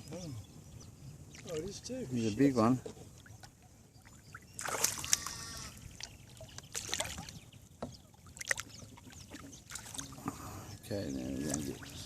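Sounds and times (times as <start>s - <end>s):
water splashing in boat: 3.2s - 12.0s.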